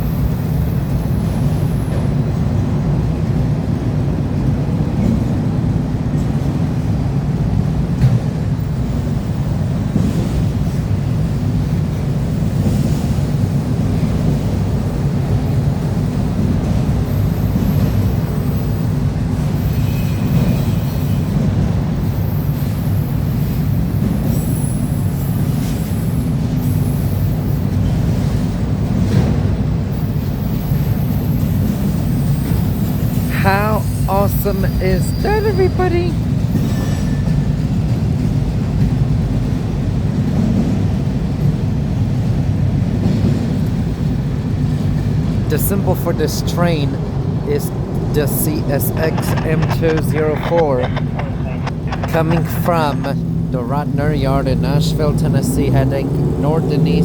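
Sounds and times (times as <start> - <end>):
freight train rumbling past: 0.0 - 57.0
train wheel squeals: 17.0 - 28.0, 30.0 - 35.7, 36.5 - 37.7.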